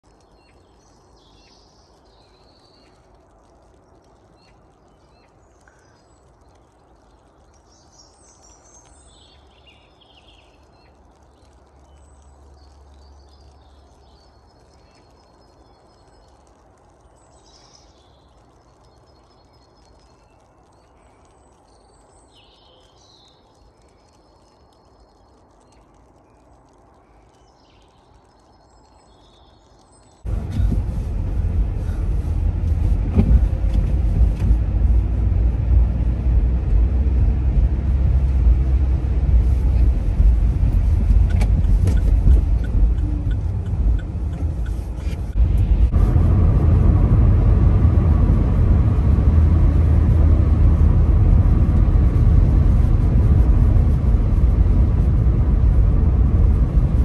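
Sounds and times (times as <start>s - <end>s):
small birds chirping: 0.0s - 46.0s
low rumble: 30.3s - 57.0s.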